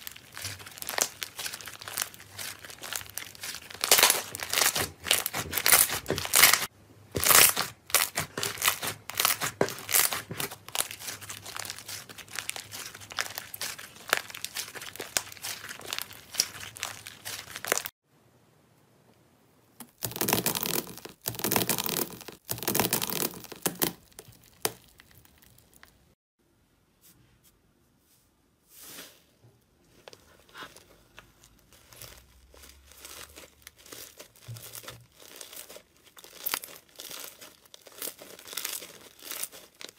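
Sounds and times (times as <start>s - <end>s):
foil crinkling: 0.0s - 17.9s, 30.0s - 39.9s
slime squeezed crackling: 0.0s - 17.9s, 19.8s - 26.2s, 30.0s - 39.9s
sticky slime rustling: 0.0s - 17.9s, 19.8s - 26.2s, 28.7s - 39.9s.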